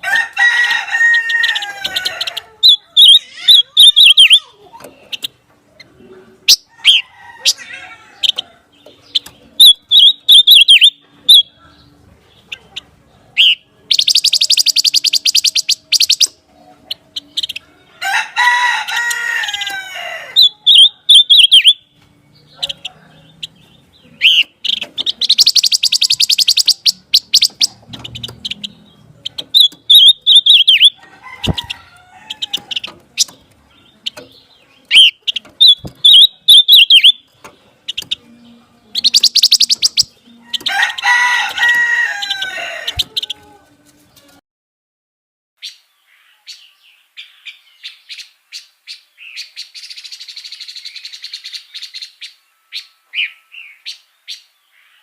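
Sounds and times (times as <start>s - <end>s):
harsh lower bird call: 1.4s - 4.6s, 29.6s - 31.7s, 34.9s - 37.3s
songbird whistled phrases: 2.7s - 4.6s, 9.6s - 11.5s, 13.4s - 16.3s, 20.4s - 21.8s, 25.2s - 27.8s, 34.9s - 37.3s, 39.0s - 40.2s
rapid buzzy bird trills: 13.4s - 16.4s, 24.2s - 31.7s, 39.0s - 40.7s.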